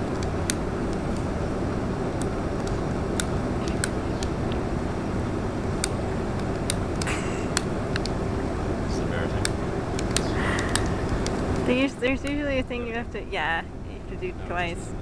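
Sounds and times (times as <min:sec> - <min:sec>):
low outdoor rumble: 0:00.0 - 0:15.0
sharp clicks: 0:02.2 - 0:04.6, 0:05.8 - 0:08.2, 0:09.4 - 0:12.4.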